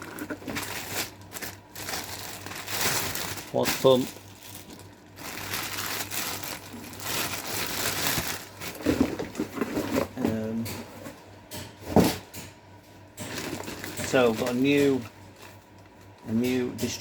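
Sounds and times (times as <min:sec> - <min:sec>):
packaging crinkling and rustling: 0:00.0 - 0:10.3, 0:13.2 - 0:16.3.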